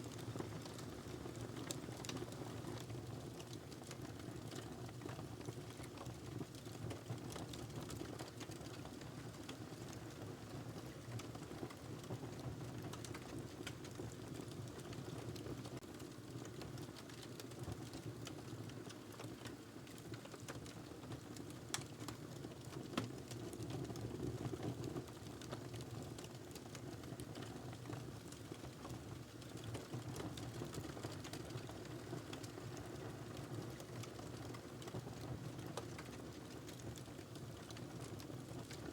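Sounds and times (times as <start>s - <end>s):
wood fire crackling: 0.1s - 38.9s.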